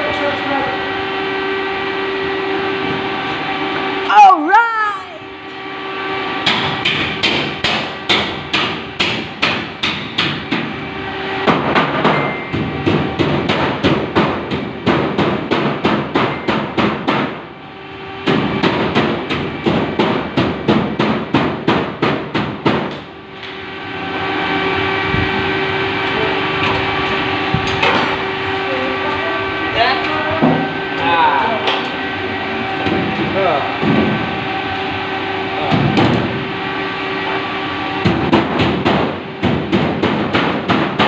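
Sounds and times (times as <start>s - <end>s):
machine running: 0.0s - 41.0s
hammering: 6.4s - 10.7s, 11.4s - 17.4s, 18.2s - 23.1s, 38.0s - 41.0s.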